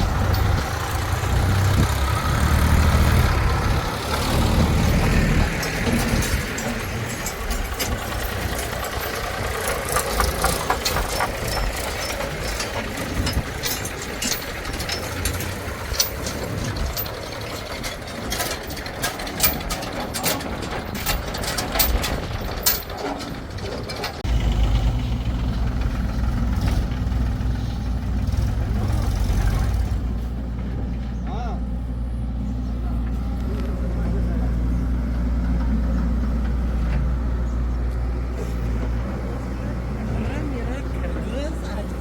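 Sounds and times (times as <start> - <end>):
low engine drone: 0.0 - 17.1
sharp metal knocks and clanks: 0.0 - 24.3
diesel engines running: 0.0 - 42.0.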